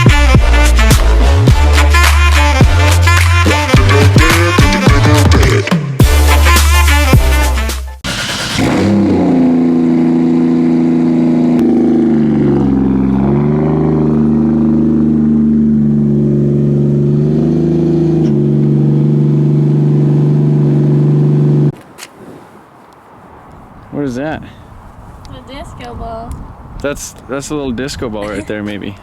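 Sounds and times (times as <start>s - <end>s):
car engine idling: 8.0s - 21.8s.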